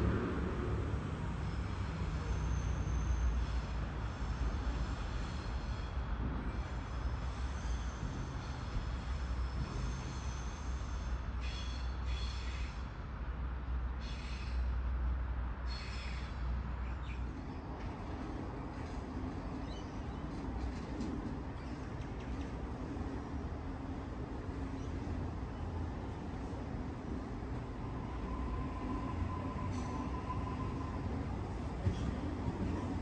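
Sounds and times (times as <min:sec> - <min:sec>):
distant train hum: 0:00.0 - 0:33.0
train rumbling: 0:00.0 - 0:33.0.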